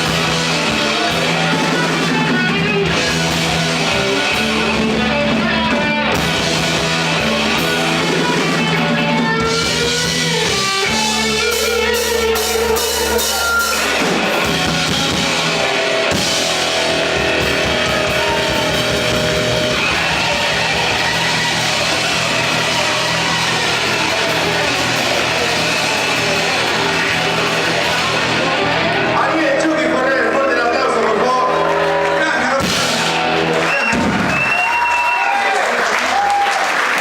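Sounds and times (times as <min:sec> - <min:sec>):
drum kit playing: 0:00.0 - 0:30.0, 0:31.6 - 0:34.9
bass guitar: 0:00.0 - 0:35.4
electric guitar: 0:00.0 - 0:37.0.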